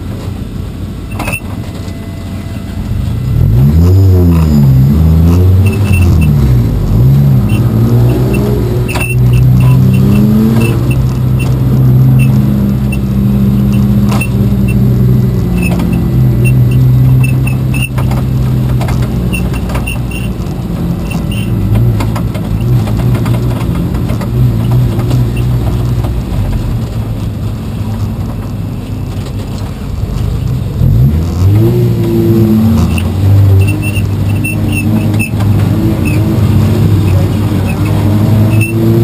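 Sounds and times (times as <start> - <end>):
race car engine revving: 2.8 - 28.5, 29.2 - 39.0
light rattling and clicking: 15.6 - 30.6.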